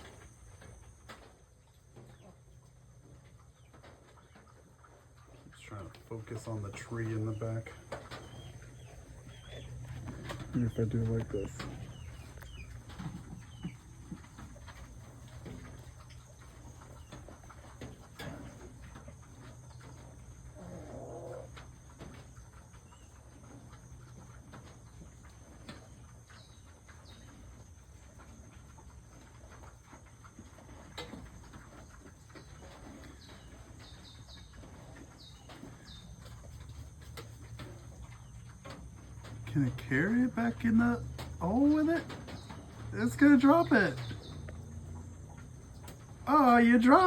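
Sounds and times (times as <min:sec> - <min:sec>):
low steady hum: 0:00.0 - 0:47.0
faint bird chirps: 0:07.0 - 0:14.0.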